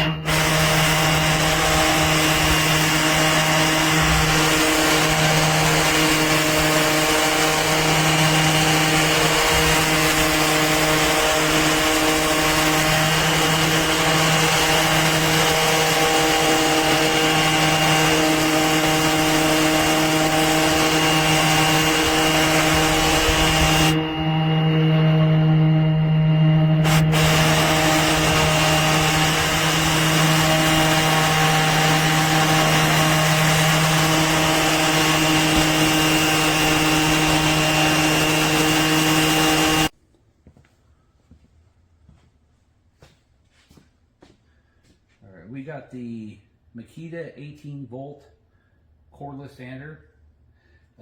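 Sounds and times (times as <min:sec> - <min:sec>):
orbit sander sanding wood: 0:00.0 - 0:40.0.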